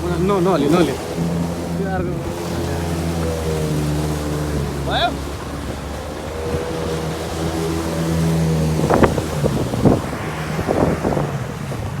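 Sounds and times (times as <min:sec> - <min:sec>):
jet ski engine running: 0:00.0 - 0:12.0
whooshes of water and wind: 0:00.0 - 0:12.0.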